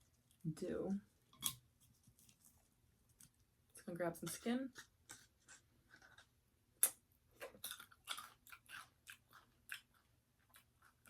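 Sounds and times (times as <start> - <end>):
crispy chicken skin chewed: 4.7 - 11.0.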